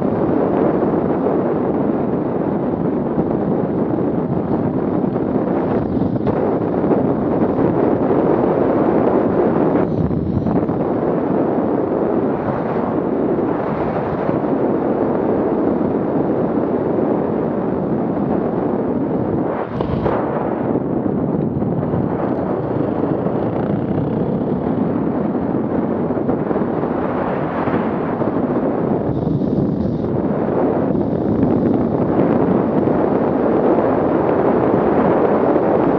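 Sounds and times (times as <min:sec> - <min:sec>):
off-road vehicle engine rumble: 0:03.2 - 0:12.3, 0:19.0 - 0:33.5.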